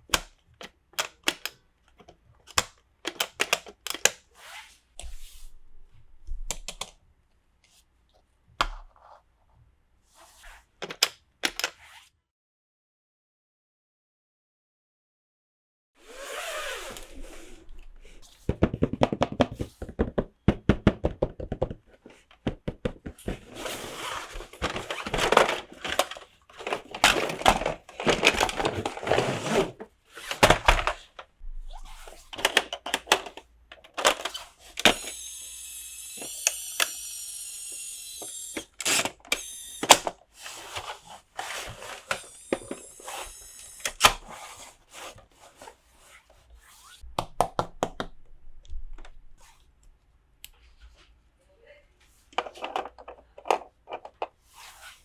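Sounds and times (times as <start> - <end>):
plastic toy pieces clicking: 0.1 - 4.1, 32.4 - 40.1.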